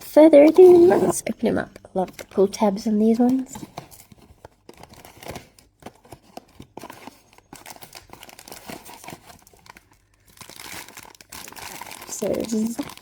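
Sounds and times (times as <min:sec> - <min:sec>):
cardboard packaging tearing: 0:02.0 - 0:13.0.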